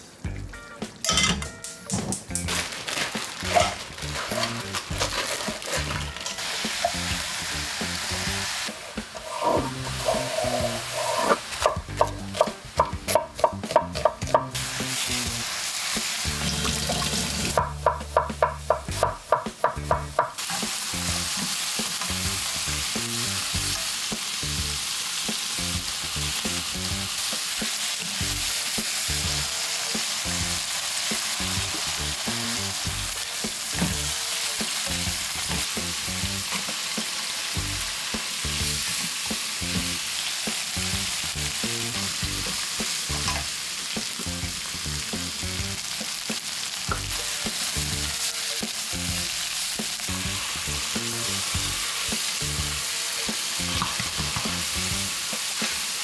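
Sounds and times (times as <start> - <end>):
food sizzling in a pan: 2.3 - 56.0
utensil knocking against a pan: 11.7 - 14.6, 17.6 - 20.4.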